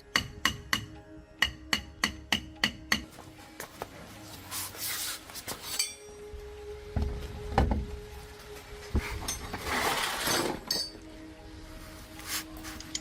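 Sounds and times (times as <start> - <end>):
metal objects clinking and knocking: 9.1 - 11.1, 12.8 - 13.0.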